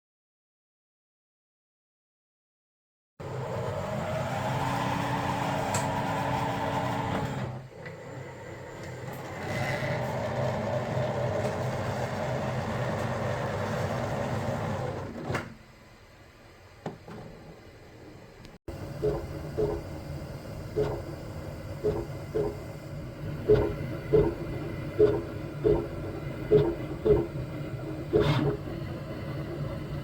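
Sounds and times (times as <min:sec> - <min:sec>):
printer fans and motors whirring: 0:03.2 - 0:30.0
low hum: 0:18.7 - 0:30.0.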